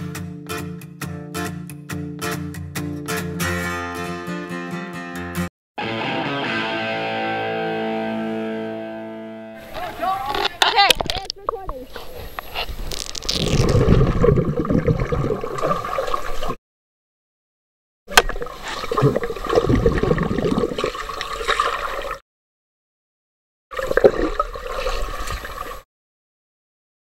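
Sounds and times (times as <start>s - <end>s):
pool water splashing and bubbling: 13.2s - 16.6s, 18.1s - 22.2s, 23.7s - 25.9s.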